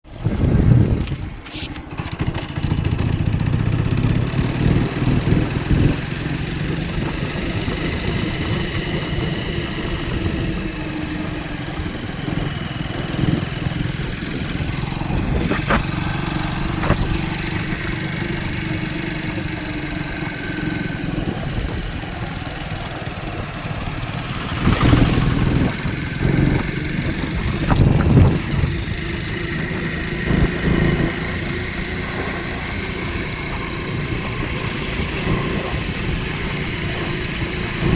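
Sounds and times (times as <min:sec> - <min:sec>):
motorcycle engine running: 0:00.1 - 0:37.9.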